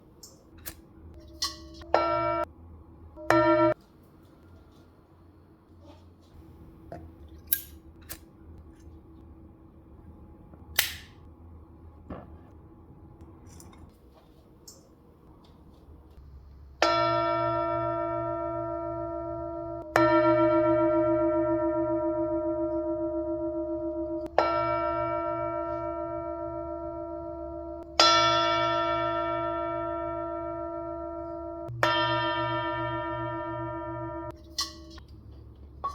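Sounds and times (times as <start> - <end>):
singing bowl hum: 1.1 - 2.5, 16.8 - 35.0.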